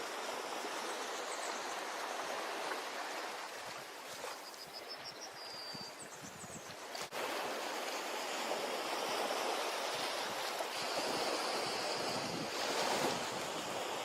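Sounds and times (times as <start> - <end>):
ocean surf washing: 6.8 - 14.0.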